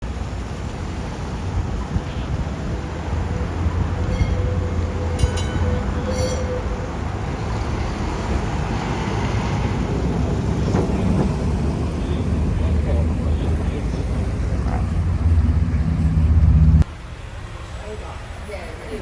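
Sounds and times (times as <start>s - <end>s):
tram rumbling along track: 0.0s - 19.0s
high ringing bell: 4.0s - 6.9s.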